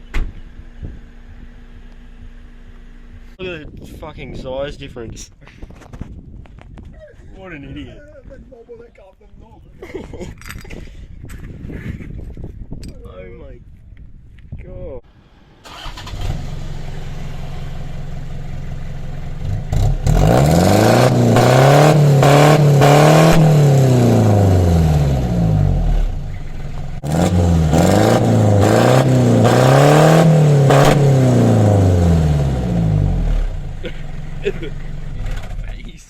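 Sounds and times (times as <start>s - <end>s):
diesel engine idling and revving: 0.0s - 3.4s, 15.3s - 35.9s.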